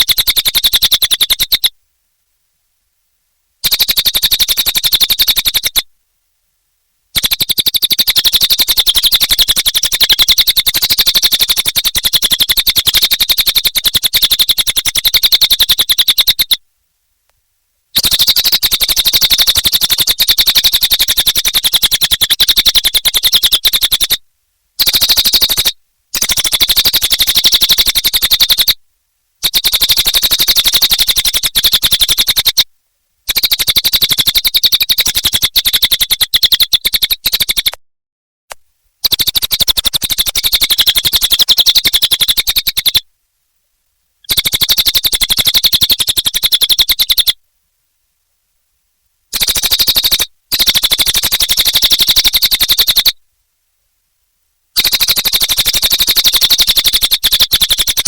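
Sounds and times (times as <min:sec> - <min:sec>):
songbird chattering trill: 0:00.0 - 0:01.7, 0:03.6 - 0:05.9, 0:07.2 - 0:16.6, 0:18.0 - 0:24.2, 0:24.8 - 0:28.8, 0:29.4 - 0:32.6, 0:33.3 - 0:37.8, 0:39.0 - 0:43.0, 0:44.2 - 0:47.4, 0:49.3 - 0:53.2, 0:54.8 - 0:58.0.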